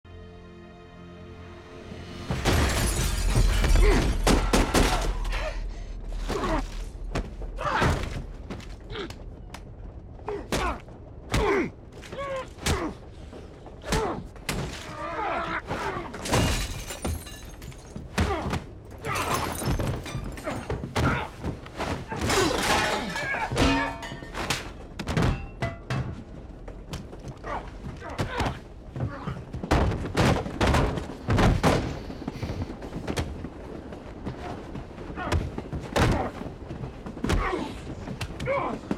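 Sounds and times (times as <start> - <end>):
glass shattering: 2.3 - 4.4, 16.2 - 18.0, 19.0 - 20.7, 22.3 - 25.9.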